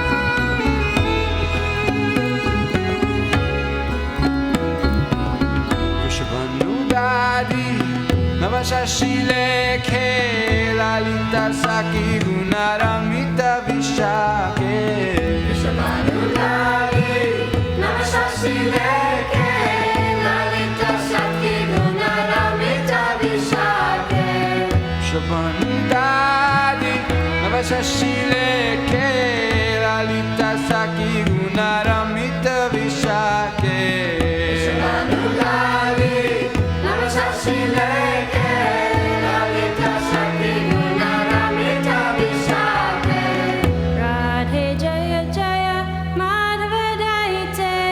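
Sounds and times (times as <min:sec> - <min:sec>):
drum accompaniment: 0:00.0 - 0:10.9, 0:30.4 - 0:44.0
person singing devotional song: 0:05.7 - 0:47.9.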